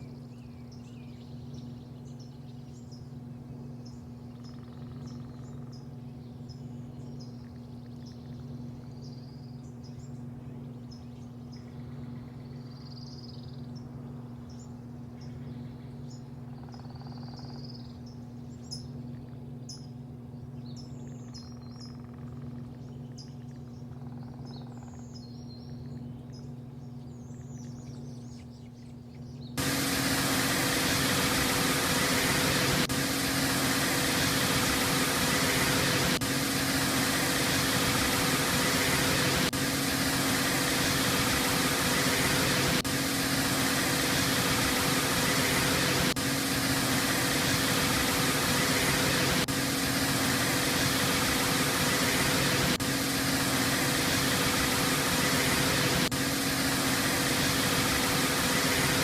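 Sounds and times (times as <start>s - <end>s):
birds chirping: 0.0s - 59.0s
low steady hum: 0.0s - 59.0s
car wash machinery hissing: 29.6s - 59.0s.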